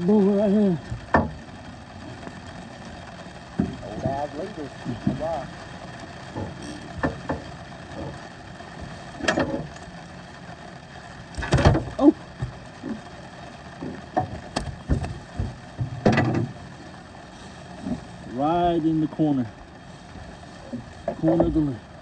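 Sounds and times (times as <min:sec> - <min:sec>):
steady background hiss: 0:00.0 - 0:22.0
knocks and thumps on a boat: 0:00.8 - 0:02.6, 0:03.2 - 0:04.3, 0:04.9 - 0:09.9, 0:11.3 - 0:16.9, 0:17.6 - 0:18.2, 0:20.7 - 0:21.9.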